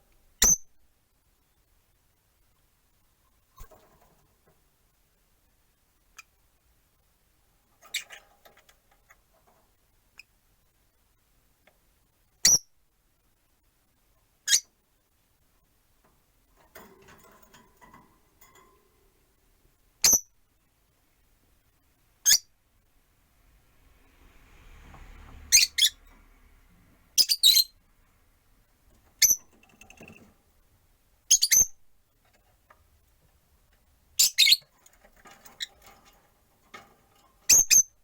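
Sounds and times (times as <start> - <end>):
lovebirds chirping: 27.2 - 27.8, 29.2 - 30.1, 31.3 - 31.8, 34.1 - 34.7.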